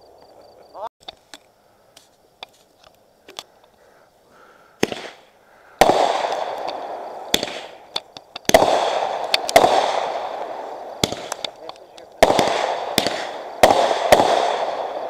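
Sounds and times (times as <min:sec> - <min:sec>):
faint firework pops: 0:04.8 - 0:14.8
firework bangs: 0:04.8 - 0:15.0
firework crackle: 0:04.8 - 0:15.0.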